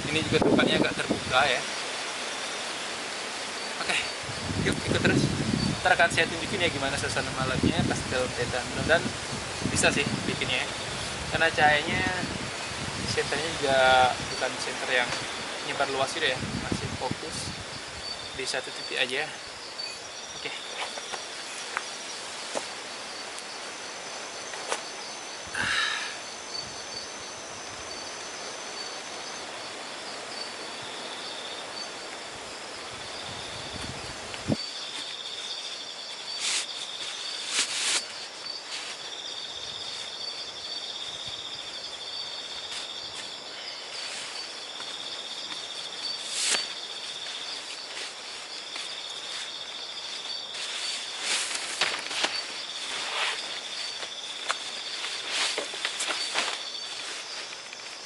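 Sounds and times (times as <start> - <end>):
wind rumble on microphone: 0.0 - 1.6, 3.9 - 18.4, 32.4 - 34.6
night insects chirping: 0.0 - 58.0
steady background hiss: 0.0 - 58.0.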